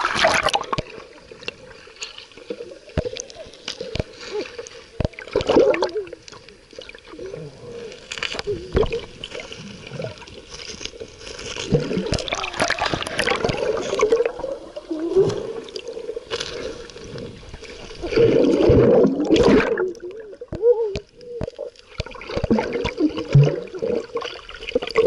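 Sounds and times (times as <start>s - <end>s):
water splashing and sloshing: 0.0s - 25.0s
sharp splashes: 18.0s - 19.9s.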